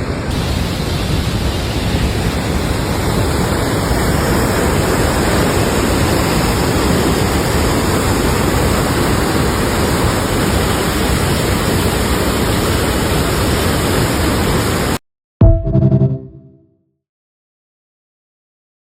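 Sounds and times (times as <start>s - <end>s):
waterfall rushing: 0.3s - 14.8s.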